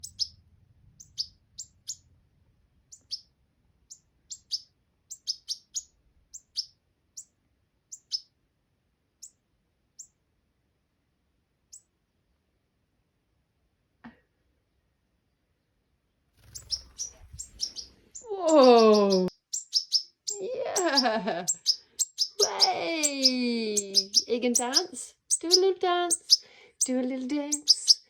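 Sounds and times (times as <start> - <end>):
bird chirping: 0.0 - 2.1, 2.8 - 8.4, 9.1 - 10.2, 11.7 - 12.0, 15.2 - 28.0.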